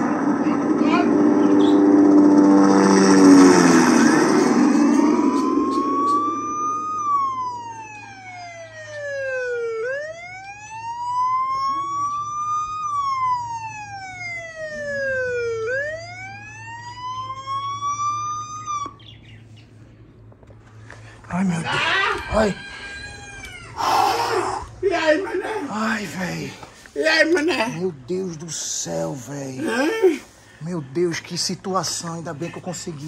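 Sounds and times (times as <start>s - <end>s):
police siren wailing: 0.0s - 19.0s, 21.3s - 27.8s.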